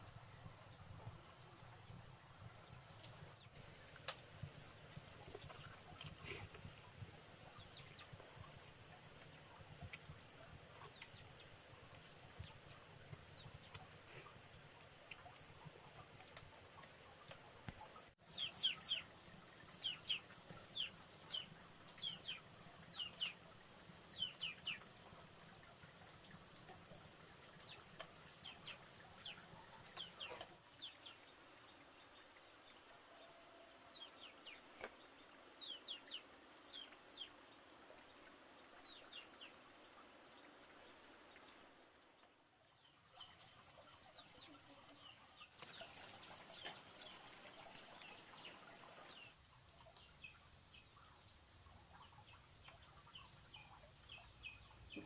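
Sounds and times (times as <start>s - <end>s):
small birds chirping: 0.9s - 32.2s, 42.6s - 55.0s.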